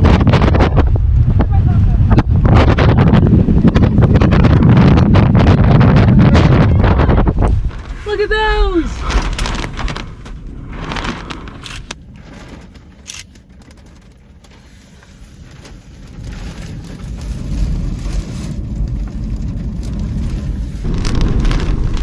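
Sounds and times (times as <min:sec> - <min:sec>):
wind buffeting a car: 0:00.0 - 0:22.0
small clicks: 0:12.7 - 0:14.6.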